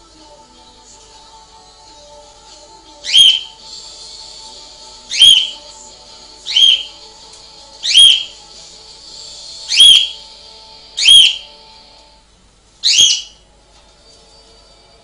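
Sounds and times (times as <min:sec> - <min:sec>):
bird whistled call: 0:03.0 - 0:03.6, 0:05.1 - 0:05.6, 0:06.5 - 0:07.0, 0:07.8 - 0:08.4, 0:09.7 - 0:10.2, 0:11.0 - 0:11.5, 0:12.8 - 0:13.4.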